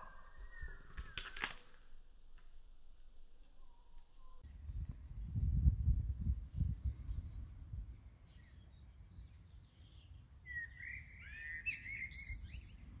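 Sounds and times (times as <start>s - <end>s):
bird gliding whistles: 0.0s - 1.4s, 3.5s - 5.2s, 9.3s - 13.0s
small birds chirping: 0.0s - 1.5s, 3.5s - 13.0s
wind rumble on microphone: 4.3s - 9.7s.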